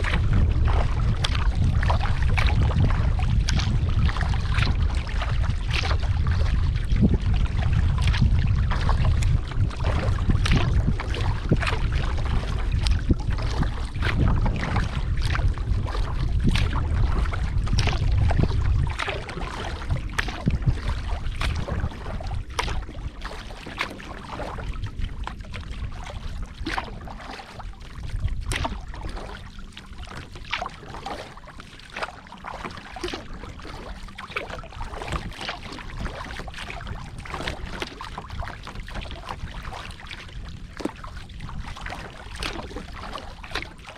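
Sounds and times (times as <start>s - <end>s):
paddle splashing water: 0.0s - 43.9s
wind rumbling on microphone: 0.0s - 43.9s.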